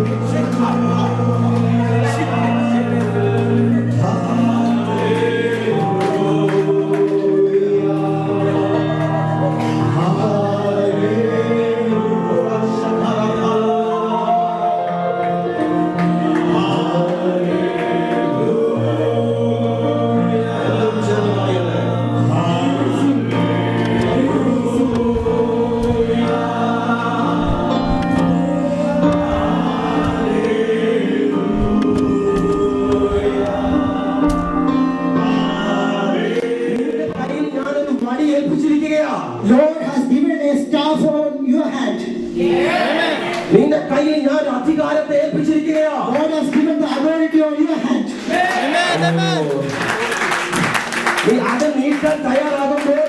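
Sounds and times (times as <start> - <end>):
held chords: 0.0 - 38.4
group singing worship music: 0.0 - 41.0, 41.7 - 47.0, 47.6 - 52.4.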